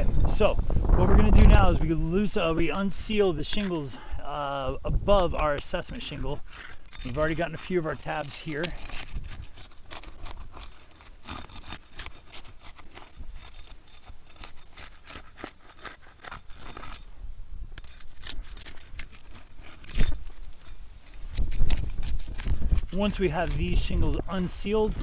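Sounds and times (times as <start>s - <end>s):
wind rumble on microphone: 0.0s - 10.7s, 17.0s - 25.0s
shingle seals tearing and crackling: 5.1s - 25.0s.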